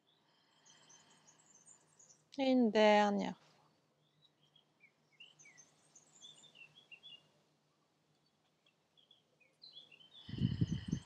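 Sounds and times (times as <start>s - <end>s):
small birds chirping: 0.0s - 7.4s, 8.1s - 11.0s
low pulsing rumble: 10.3s - 11.0s.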